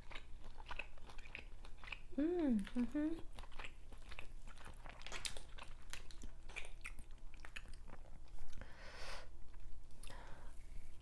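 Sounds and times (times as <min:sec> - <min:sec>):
close chewing with wet smacking: 0:00.0 - 0:08.6.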